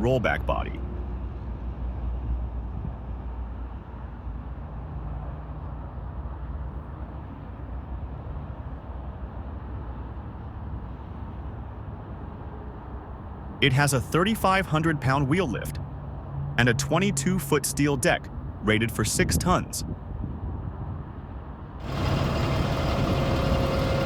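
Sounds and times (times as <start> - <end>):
outdoor background rumble: 5.4 - 24.0.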